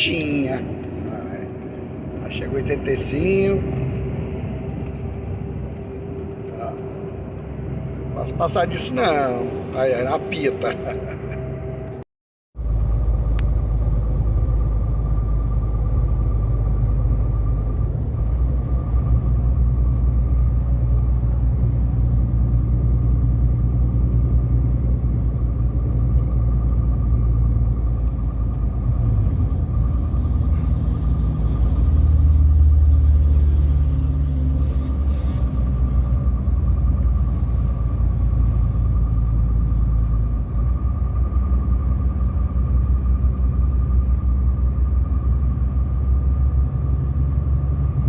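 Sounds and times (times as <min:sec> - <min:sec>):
heavy truck engine and road rumble: 0:00.0 - 0:48.0.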